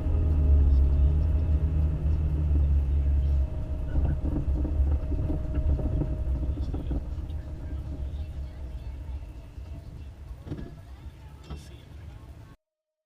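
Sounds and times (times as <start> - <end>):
car engine and road rumble: 0.0 - 12.6.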